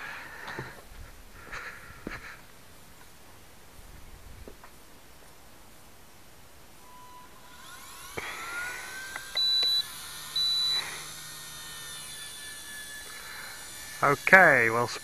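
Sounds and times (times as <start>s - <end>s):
electric motors whining: 6.8s - 15.0s
sharp clicks: 9.1s - 9.8s
high-pitched beeps: 9.3s - 10.8s.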